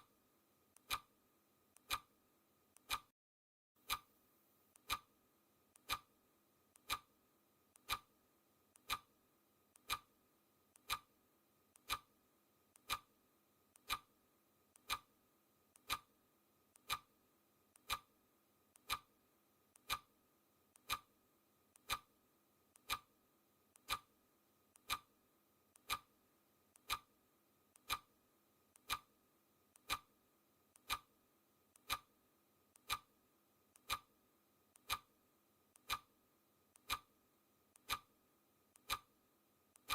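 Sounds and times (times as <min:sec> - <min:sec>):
clock ticking: 0:00.8 - 0:01.1, 0:01.8 - 0:02.1, 0:02.7 - 0:03.1, 0:03.8 - 0:04.1, 0:04.8 - 0:05.1, 0:05.8 - 0:06.1, 0:06.8 - 0:07.1, 0:07.8 - 0:08.1, 0:08.8 - 0:09.1, 0:09.8 - 0:10.2, 0:10.8 - 0:11.2, 0:11.8 - 0:12.1, 0:12.8 - 0:13.1, 0:13.8 - 0:14.1, 0:14.8 - 0:15.2, 0:15.8 - 0:16.2, 0:16.8 - 0:17.1, 0:17.8 - 0:18.1, 0:18.8 - 0:19.2, 0:19.8 - 0:20.1, 0:20.8 - 0:21.2, 0:21.8 - 0:22.1, 0:22.8 - 0:23.2, 0:23.8 - 0:24.2, 0:24.8 - 0:25.2, 0:25.8 - 0:26.2, 0:26.8 - 0:27.2, 0:27.8 - 0:28.2, 0:28.8 - 0:30.2, 0:30.8 - 0:31.2, 0:31.8 - 0:32.2, 0:32.8 - 0:35.2, 0:35.8 - 0:36.2, 0:36.8 - 0:37.2, 0:37.8 - 0:38.2, 0:38.8 - 0:39.2.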